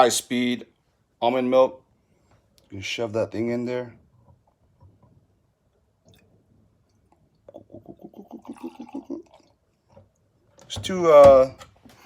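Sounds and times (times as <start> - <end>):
milk glugging from carton: 7.4 - 10.0.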